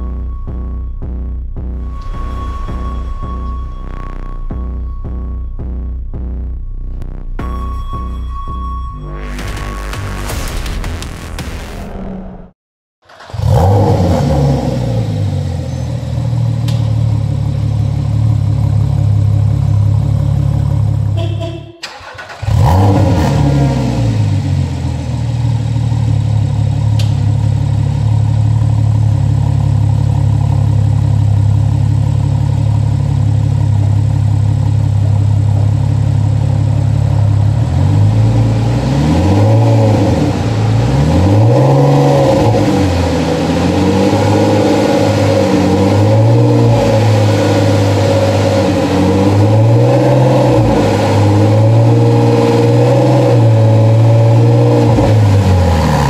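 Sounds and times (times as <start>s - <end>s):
engine revving: 11.3s - 18.8s, 21.2s - 27.2s, 35.8s - 56.0s
race car engine idling: 15.0s - 22.2s, 24.2s - 38.6s.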